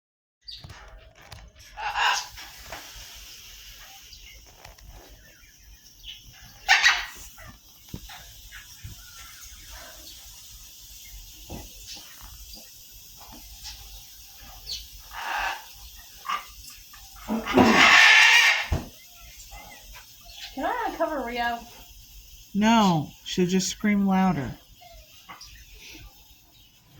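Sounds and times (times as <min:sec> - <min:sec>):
parrot screaming: 0:01.8 - 0:02.3, 0:06.7 - 0:07.5, 0:17.3 - 0:18.8.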